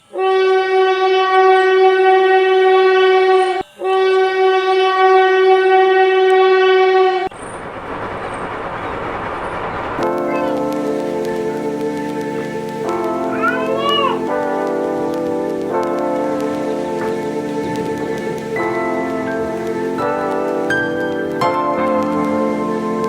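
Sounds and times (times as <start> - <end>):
train horn blasts: 0.0 - 7.3
train rushing on rails: 7.0 - 23.0.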